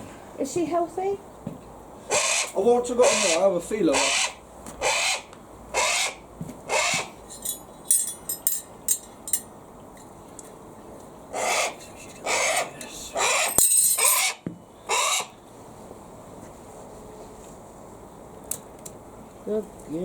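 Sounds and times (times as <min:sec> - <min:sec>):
hawk harsh raspy calls: 0:02.0 - 0:07.2, 0:11.3 - 0:15.4.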